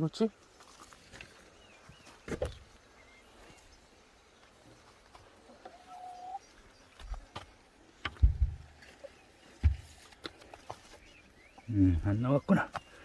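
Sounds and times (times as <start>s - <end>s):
bird chirp: 0.0s - 13.0s
drawn-out bird call: 5.5s - 6.9s.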